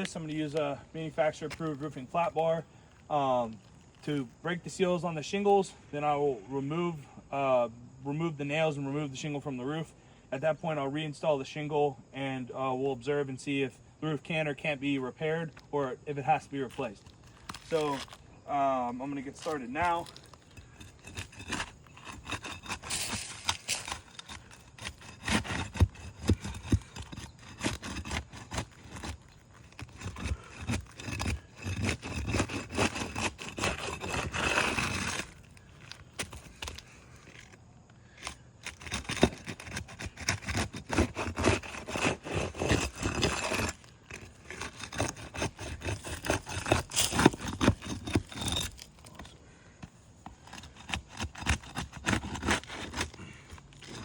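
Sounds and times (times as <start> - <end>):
flat bar scraping under shingles: 0.0 - 7.6, 8.5 - 54.0
sealant tearing: 19.4 - 37.6.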